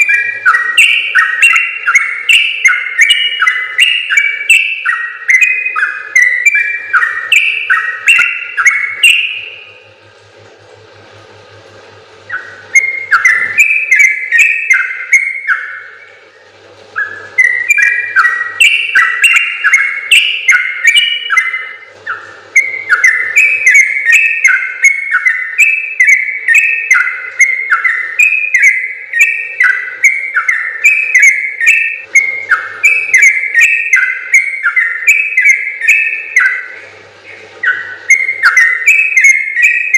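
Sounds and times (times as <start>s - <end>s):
bird singing whistled notes: 0.0s - 9.8s, 12.3s - 16.4s, 17.0s - 39.9s.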